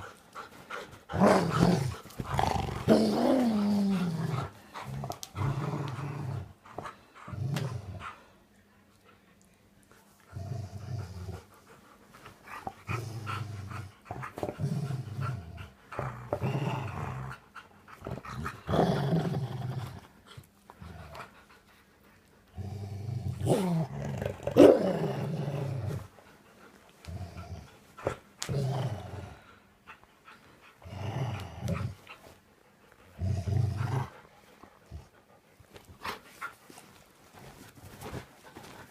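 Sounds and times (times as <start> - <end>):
dog growling in play: 0.4 - 8.4, 10.2 - 11.7, 12.5 - 21.4, 22.5 - 26.1, 27.0 - 29.6, 30.8 - 32.3, 33.0 - 35.2.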